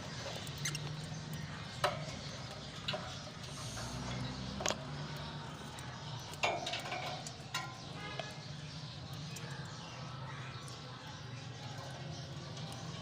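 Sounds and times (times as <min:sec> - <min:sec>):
lovebirds chirping: 0:00.0 - 0:13.0.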